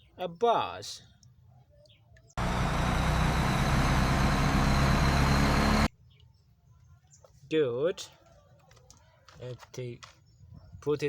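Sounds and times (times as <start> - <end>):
bus engine idling: 2.4 - 5.9.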